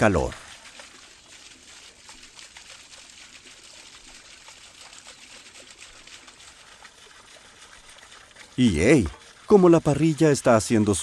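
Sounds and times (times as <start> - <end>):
water drips and ticks: 0.0 - 11.0
water trickling and splashing: 0.0 - 11.0.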